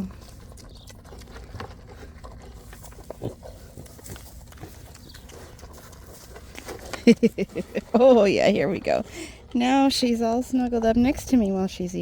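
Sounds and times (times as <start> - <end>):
pig grunting: 0.0 - 7.1
pig chewing: 0.0 - 12.0.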